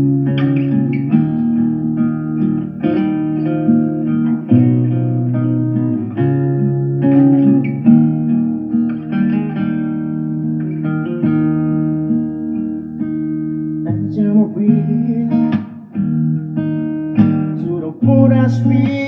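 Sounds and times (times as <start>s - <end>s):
plucked guitar notes: 0.0s - 19.0s
person singing love ballad: 13.8s - 19.0s.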